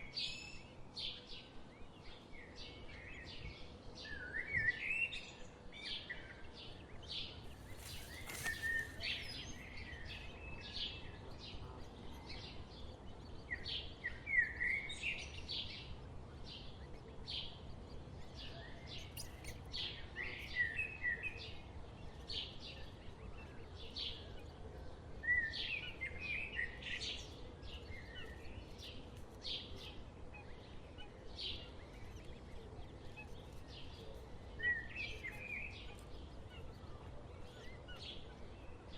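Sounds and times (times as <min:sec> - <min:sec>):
birds chirping: 0:07.4 - 0:09.7.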